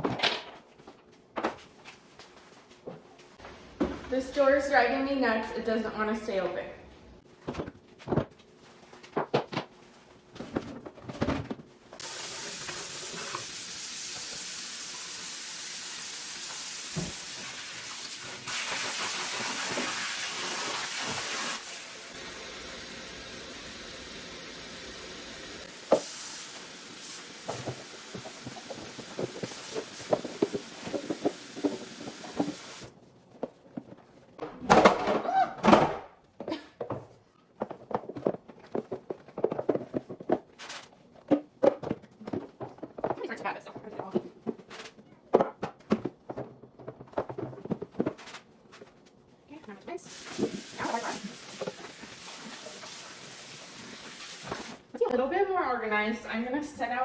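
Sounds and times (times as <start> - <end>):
tap water running into a sink: 12.0 - 32.9, 50.1 - 54.8.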